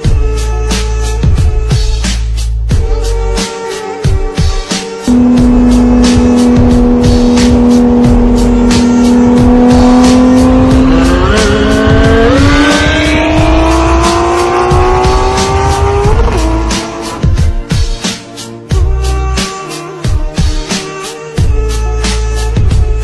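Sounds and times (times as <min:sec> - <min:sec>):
music beat: 0:00.0 - 0:23.0
sports car engine revving: 0:05.1 - 0:17.2.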